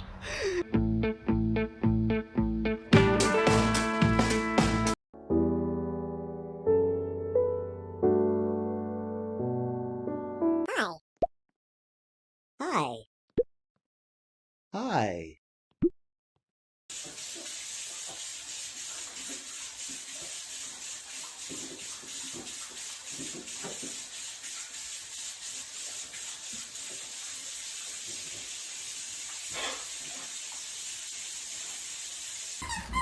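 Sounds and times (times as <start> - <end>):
running water rushing: 16.9 - 32.6.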